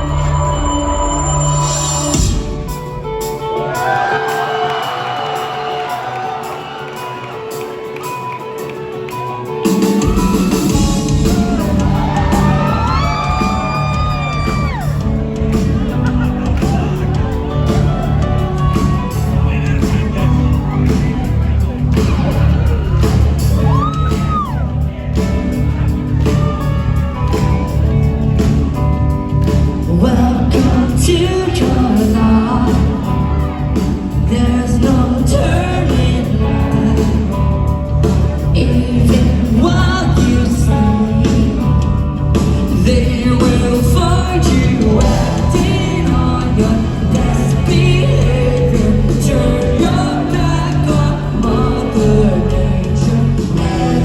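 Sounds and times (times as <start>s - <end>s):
live rock band playing: 0.0s - 54.0s
person singing: 29.8s - 54.0s.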